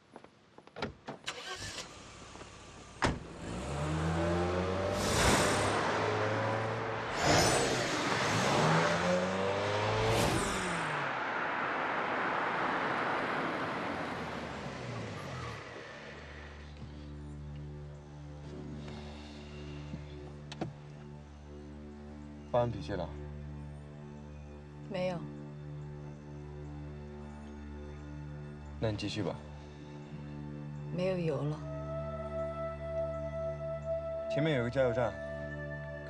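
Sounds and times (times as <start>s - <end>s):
car engine revving: 1.4s - 16.8s
loud whoosh: 4.6s - 12.5s.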